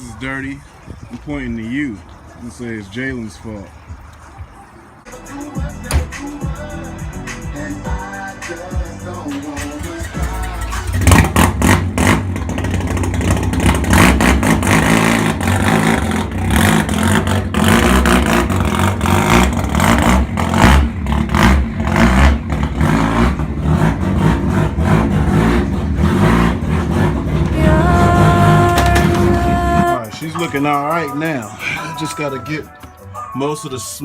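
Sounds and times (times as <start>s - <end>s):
engine revving unevenly: 5.7s - 29.9s.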